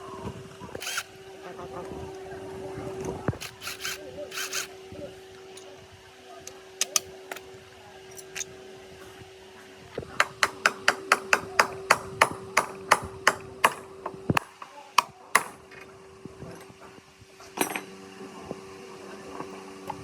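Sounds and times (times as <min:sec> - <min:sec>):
steady hum: 0:00.0 - 0:11.2.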